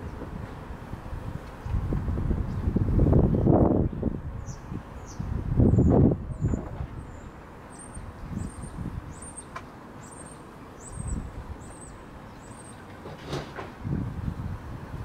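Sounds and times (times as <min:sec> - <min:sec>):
wind rumbling on microphone: 0:00.0 - 0:09.4, 0:10.8 - 0:12.4, 0:13.1 - 0:15.0
small bird high-pitched call: 0:07.1 - 0:12.8.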